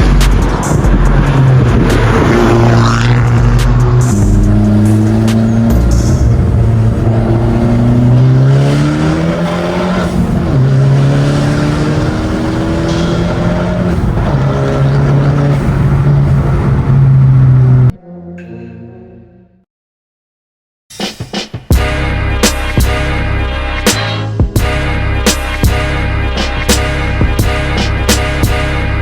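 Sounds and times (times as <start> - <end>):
car engine accelerating: 0.0 - 17.9.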